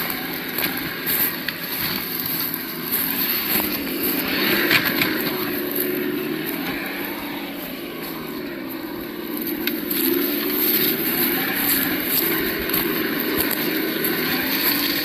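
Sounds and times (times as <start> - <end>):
simulated engine sound: 0.0 - 15.0.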